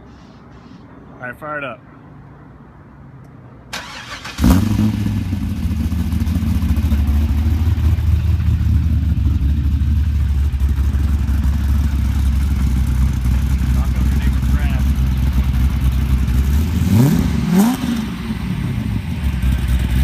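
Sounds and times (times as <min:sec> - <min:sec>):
car starter cranking: 0:03.7 - 0:04.9
car engine revving and idling: 0:03.8 - 0:20.0.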